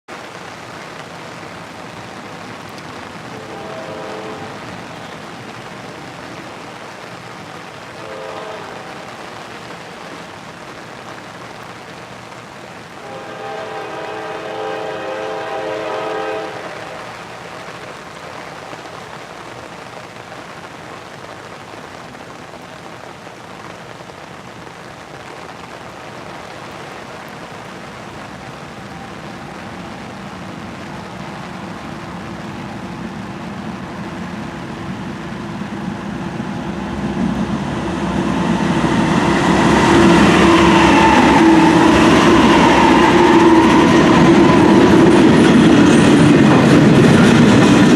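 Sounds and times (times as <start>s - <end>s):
rain hiss: 0.1s - 47.9s
locomotive air horn: 3.4s - 4.6s, 8.0s - 9.1s, 13.0s - 17.0s
locomotive engine rumble: 26.7s - 47.9s
train wheel noise: 28.4s - 47.9s.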